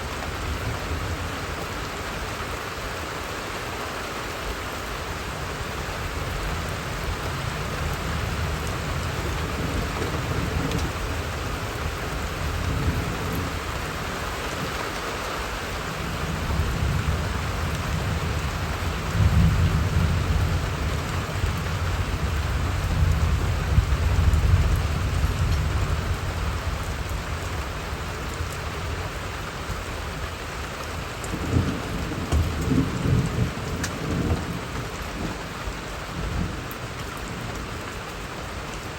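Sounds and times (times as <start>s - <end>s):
steady rain falling: 0.0s - 38.9s
rolling thunder: 16.0s - 27.4s, 31.2s - 35.5s.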